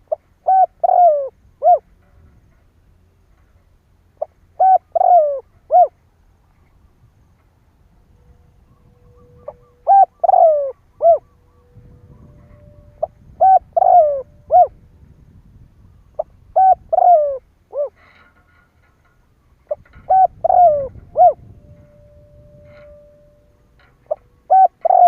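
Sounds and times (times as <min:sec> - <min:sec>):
dove cooing: 0:00.0 - 0:01.9, 0:04.2 - 0:06.0, 0:08.7 - 0:14.8, 0:16.2 - 0:18.3, 0:19.7 - 0:23.2, 0:24.1 - 0:25.0.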